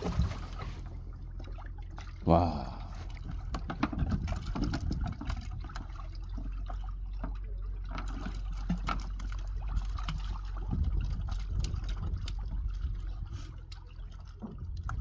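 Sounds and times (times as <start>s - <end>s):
water sloshing and trickling: 0.0s - 15.0s
low rumble: 2.3s - 6.1s.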